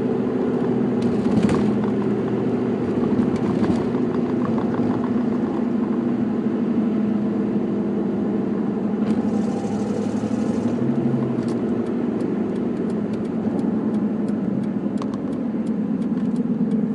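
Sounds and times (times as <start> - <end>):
car engine running: 0.0 - 16.9
exhaust ticking: 0.9 - 6.2, 9.1 - 16.9.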